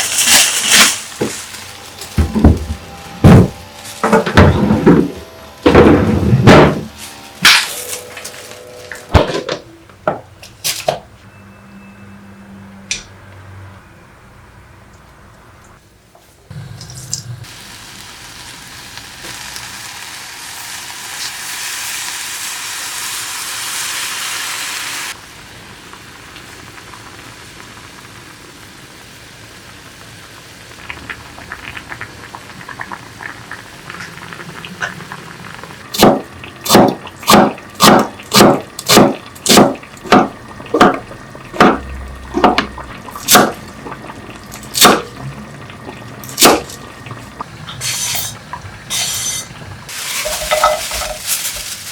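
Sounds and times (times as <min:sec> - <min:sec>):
knife chopping on cutting board: 0:36.0 - 0:41.0.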